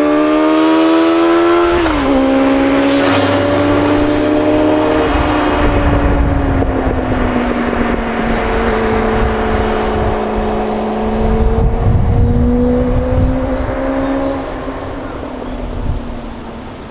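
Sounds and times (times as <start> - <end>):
low rumble: 2.4 - 7.8.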